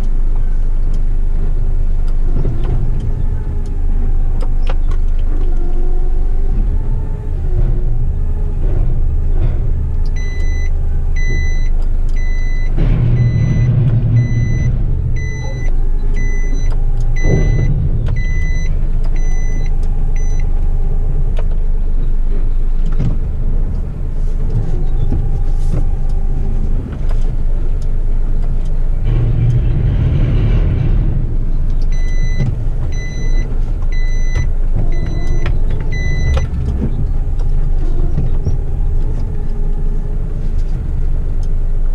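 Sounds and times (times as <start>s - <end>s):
diesel truck engine running: 0.0s - 41.9s
hydraulic lifting arms: 2.1s - 41.9s
warning beeper: 10.2s - 20.5s.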